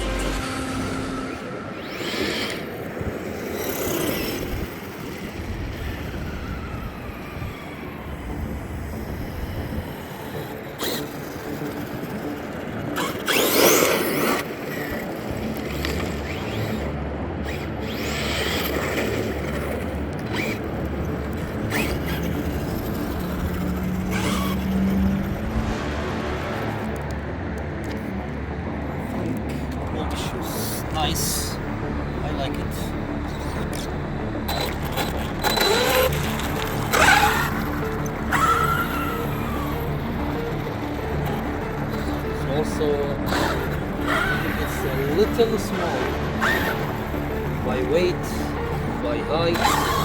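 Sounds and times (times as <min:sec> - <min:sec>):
rc car electric motor whining: 0:00.0 - 0:25.6, 0:32.7 - 0:50.0
tyres on dirt: 0:10.1 - 0:28.3, 0:32.5 - 0:50.0.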